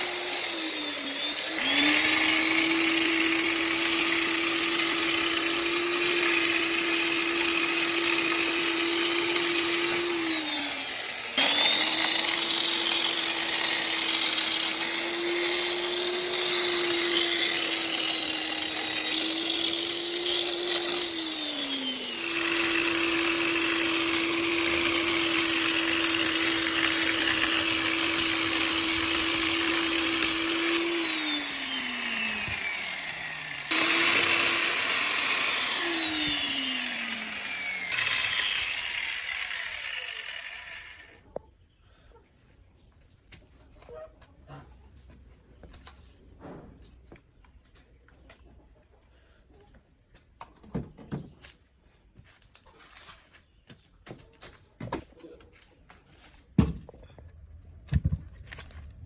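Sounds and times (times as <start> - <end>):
electric chainsaw motor running: 0.0 - 41.2.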